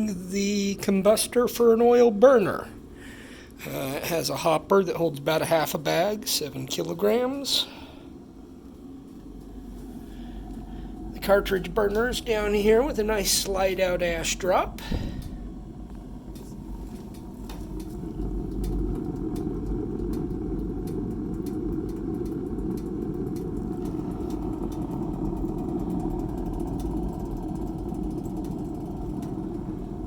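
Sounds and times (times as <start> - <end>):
exhaust fan: 0.0 - 30.0
faint crackling fire: 0.0 - 30.0
pellet burner low rumble: 0.0 - 30.0.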